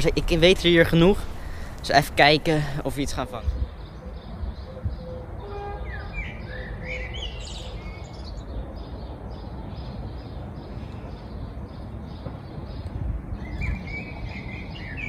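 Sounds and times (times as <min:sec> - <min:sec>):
low outdoor rumble: 0:00.0 - 0:05.9
small birds chirping: 0:00.0 - 0:15.0.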